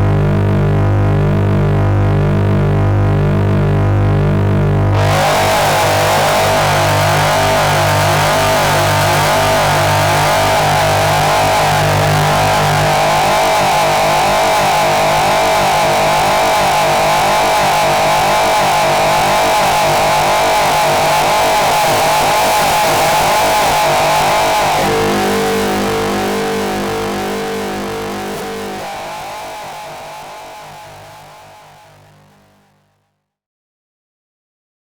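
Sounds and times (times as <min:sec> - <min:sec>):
hissing distorted noise: 0:05.0 - 0:32.7.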